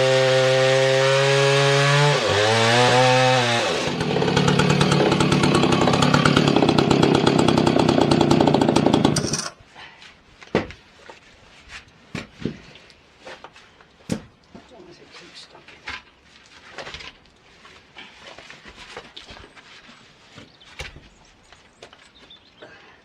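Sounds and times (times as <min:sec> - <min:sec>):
chainsaw cutting through wood: 0:00.0 - 0:09.6
chainsaw running at high revs: 0:00.0 - 0:09.6.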